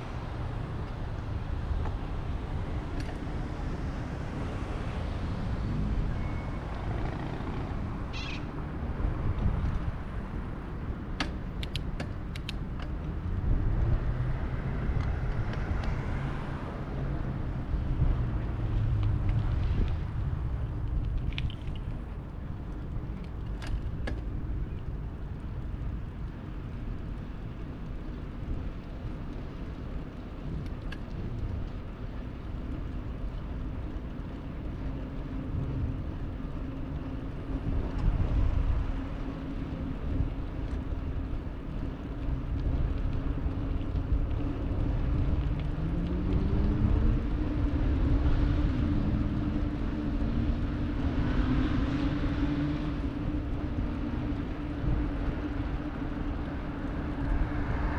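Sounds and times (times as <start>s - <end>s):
passing motor traffic: 0.0s - 21.1s, 42.6s - 57.9s
steady engine hum: 0.0s - 57.9s
wind rumbling on microphone: 0.0s - 57.9s
vehicles speeding up: 44.6s - 57.9s.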